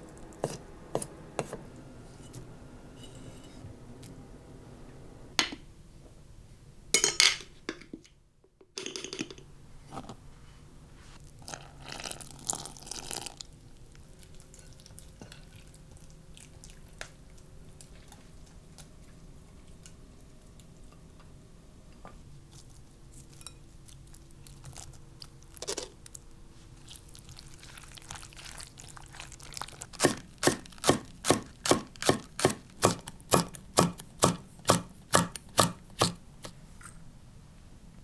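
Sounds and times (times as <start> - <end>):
faint hum: 0.0 - 6.9
scraping or rustling: 0.4 - 3.7.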